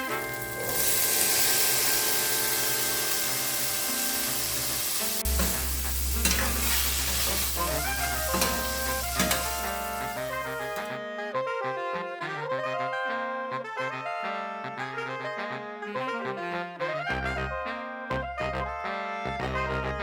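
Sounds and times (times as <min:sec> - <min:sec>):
food sizzling in a pan: 0:00.0 - 0:10.9.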